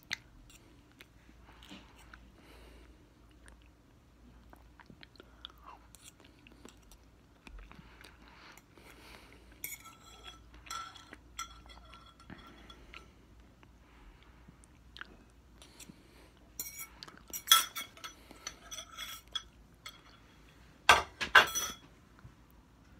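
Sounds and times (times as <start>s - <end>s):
chewing mango: 0.0s - 9.4s
fork clinking on dish: 9.6s - 12.8s, 16.6s - 20.2s.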